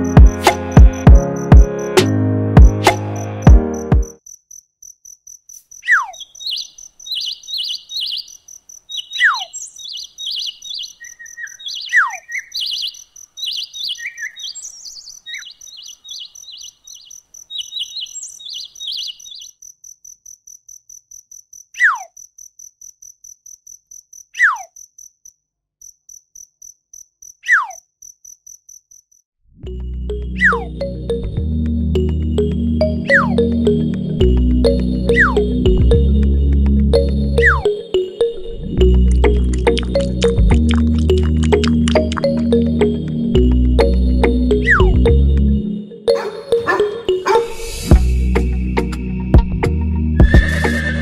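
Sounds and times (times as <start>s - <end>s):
music: 0.0s - 4.2s, 29.6s - 51.0s
insect trilling: 15.1s - 29.2s, 50.2s - 51.0s
descending bird whistles: 50.2s - 51.0s.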